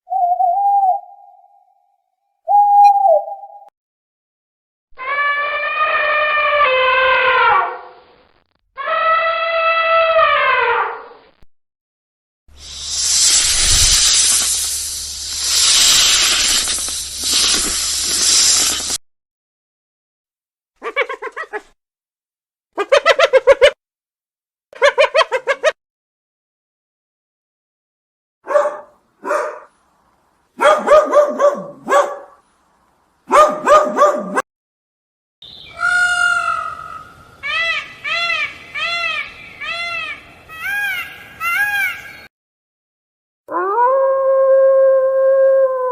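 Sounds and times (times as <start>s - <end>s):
loud animal hiss: 12.5s - 19.0s
dog barking and yipping: 20.8s - 21.7s, 28.5s - 29.7s, 30.6s - 32.4s, 33.3s - 34.4s.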